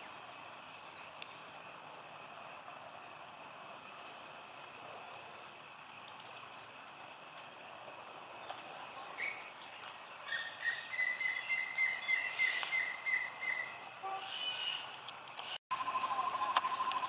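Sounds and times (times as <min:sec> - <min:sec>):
faint outdoor background noise: 0:00.0 - 0:17.0
bird calling repeated notes: 0:10.3 - 0:17.0.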